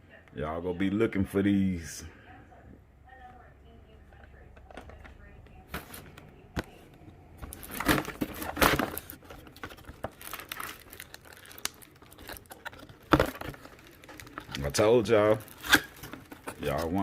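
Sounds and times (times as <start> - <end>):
plastic packaging crinkling: 7.4 - 17.0.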